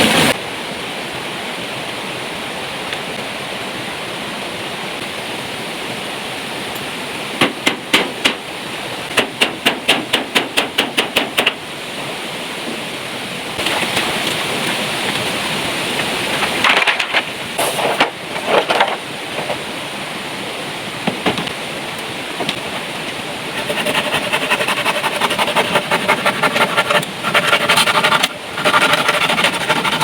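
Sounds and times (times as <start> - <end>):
heavy rain pouring: 0.0 - 0.4, 11.7 - 24.5
sharp knocks: 7.4 - 8.4, 9.1 - 11.6.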